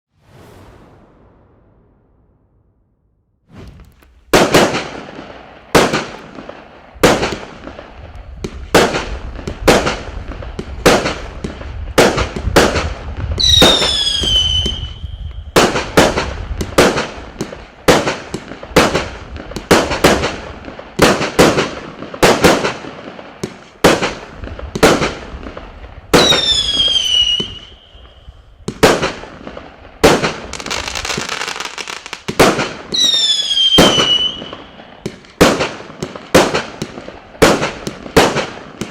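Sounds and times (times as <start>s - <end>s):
firework falling whistle: 13.4s - 15.6s, 26.2s - 28.3s, 32.9s - 34.8s
firework cake bangs: 33.6s - 38.9s.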